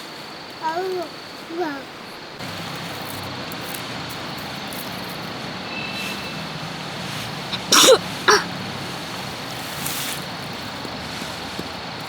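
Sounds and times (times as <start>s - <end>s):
steady rushing noise: 2.4s - 12.0s
harsh falling call: 2.6s - 11.6s.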